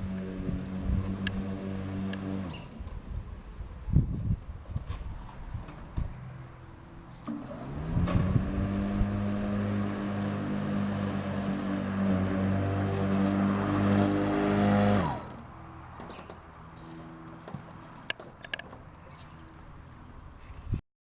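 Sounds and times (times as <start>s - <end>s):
electric motors humming: 0.0s - 3.1s, 6.8s - 20.2s.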